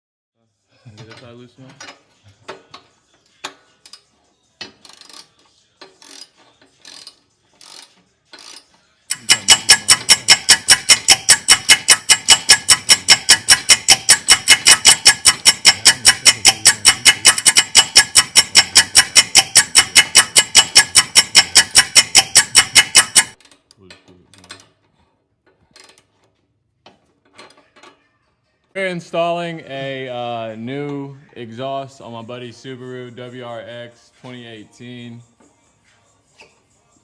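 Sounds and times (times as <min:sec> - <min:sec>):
ratchet wrench clicking: 0:03.8 - 0:23.6.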